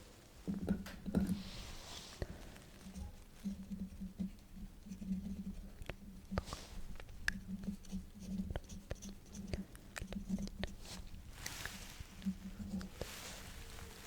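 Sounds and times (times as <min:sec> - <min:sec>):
pen nib scratching paper: 0:02.8 - 0:13.3.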